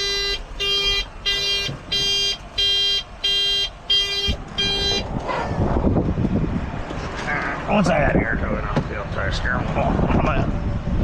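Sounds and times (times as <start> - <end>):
car alarm beeps: 0.0 - 5.1.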